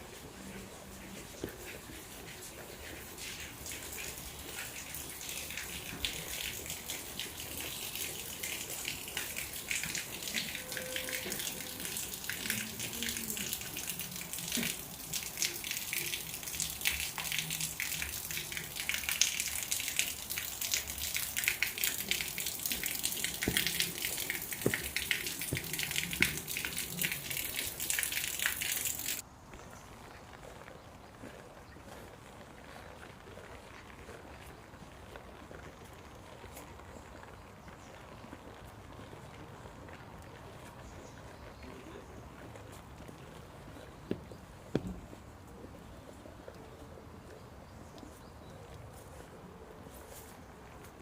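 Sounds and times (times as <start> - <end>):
heavy rain falling: 3.3 - 29.2.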